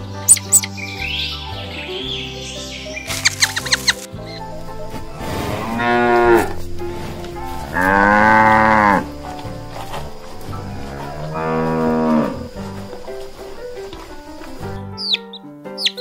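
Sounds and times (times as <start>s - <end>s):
cattle mooing: 5.0s - 14.7s.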